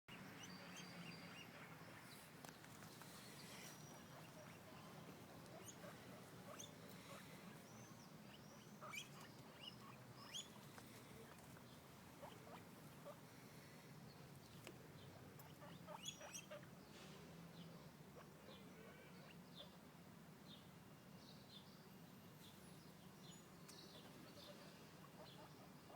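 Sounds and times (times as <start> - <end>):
guinea pigs squeaking: 0.1 - 13.2, 14.5 - 16.8, 24.2 - 25.9.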